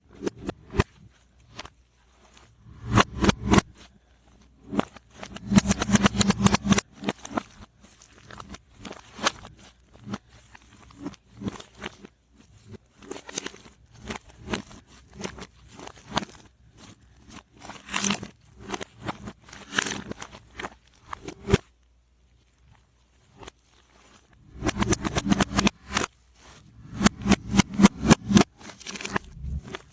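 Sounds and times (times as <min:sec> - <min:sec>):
slime crackling and popping reversed: 0:02.7 - 0:03.8, 0:04.6 - 0:10.2, 0:24.4 - 0:29.9.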